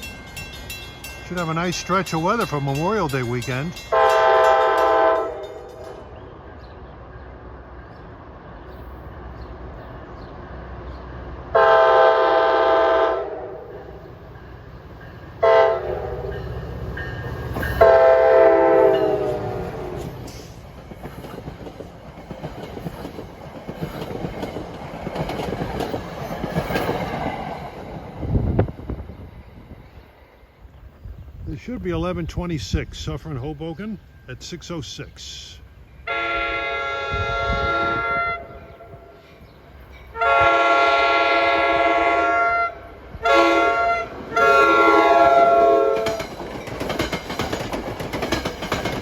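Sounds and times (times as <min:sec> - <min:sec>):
train air horn blasts: 0:03.9 - 0:05.8, 0:11.5 - 0:14.0, 0:15.4 - 0:16.5, 0:17.7 - 0:20.0, 0:36.0 - 0:39.3, 0:40.1 - 0:46.2
train wheels clattering over rails: 0:18.9 - 0:28.3, 0:44.2 - 0:49.0.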